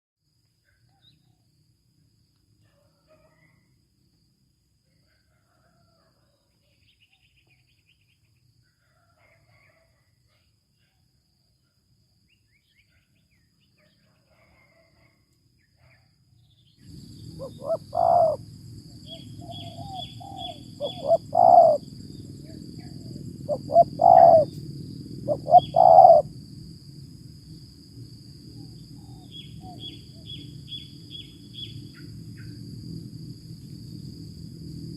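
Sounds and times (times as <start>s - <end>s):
dove cooing: 17.3s - 18.4s, 19.1s - 21.9s, 22.5s - 24.6s, 25.2s - 26.3s
high bird chirps: 19.1s - 21.8s, 25.3s - 26.2s.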